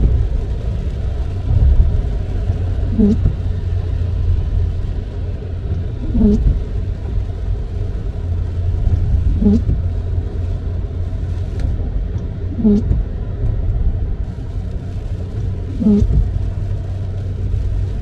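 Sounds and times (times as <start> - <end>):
car driving on wet road: 0.0 - 18.0
windshield wipers squeaking: 2.9 - 3.5, 6.0 - 6.7, 9.3 - 9.8, 12.6 - 13.1, 15.7 - 16.4.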